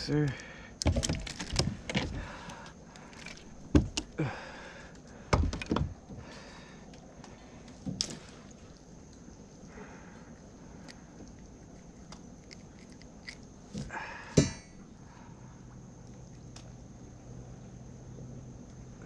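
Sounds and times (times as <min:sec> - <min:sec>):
knocks and thumps against a kayak: 0:00.8 - 0:02.5, 0:03.7 - 0:04.1, 0:05.3 - 0:06.3.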